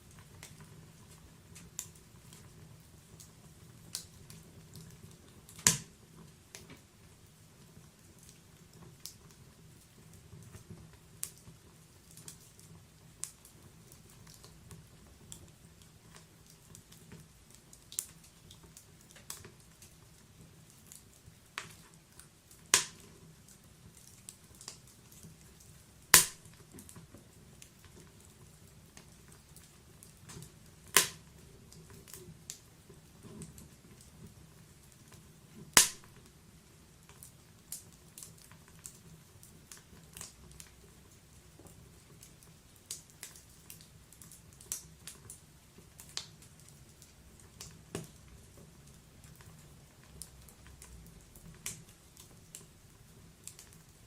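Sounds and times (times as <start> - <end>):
faint low hiss: 0.0 - 54.0
fire crackling: 0.0 - 54.0
loud sharp pops: 22.7 - 23.0, 26.1 - 26.5, 31.0 - 31.2, 35.7 - 36.1.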